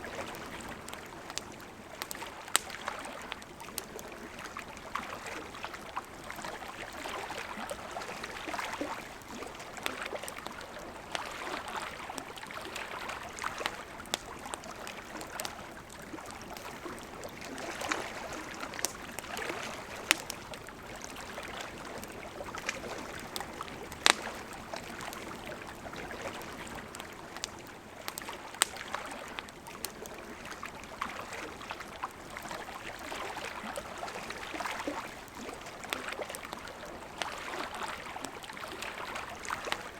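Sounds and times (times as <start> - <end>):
campfire crackling and popping: 0.0 - 39.9
river flowing: 0.0 - 39.9.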